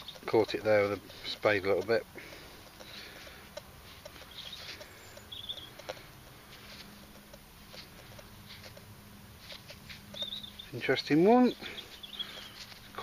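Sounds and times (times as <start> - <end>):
light ticks: 0.0 - 2.0, 2.6 - 8.9
high bird chirps: 4.2 - 5.8, 10.1 - 13.0.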